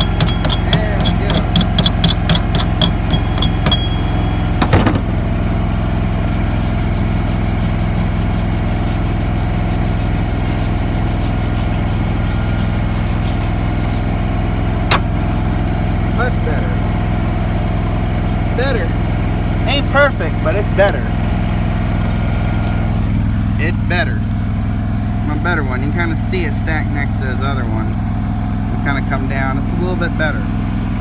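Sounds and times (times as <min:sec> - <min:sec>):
sharp knock: 0:00.0 - 0:05.3, 0:14.9 - 0:15.1
ringing metallic taps: 0:00.0 - 0:05.4, 0:14.9 - 0:15.2
engine-driven generator running: 0:00.0 - 0:31.0.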